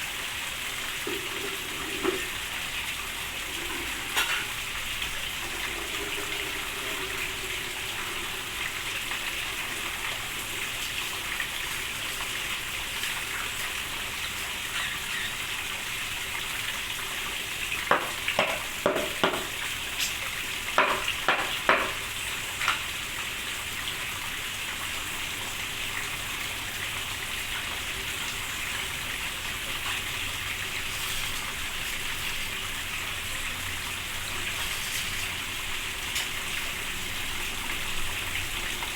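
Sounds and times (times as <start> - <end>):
steady rain hissing: 0.0 - 38.9.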